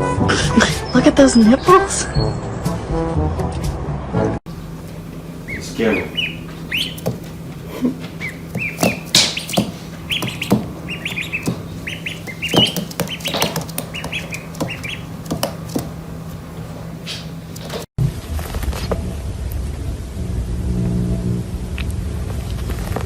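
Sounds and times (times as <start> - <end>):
birds chirping: 4.5 - 17.9.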